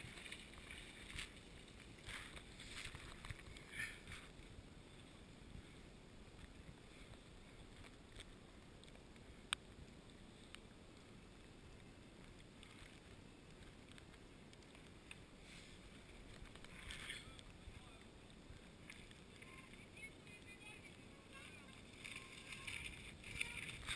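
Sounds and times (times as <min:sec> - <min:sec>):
soft ticks: 0:11.7 - 0:15.2.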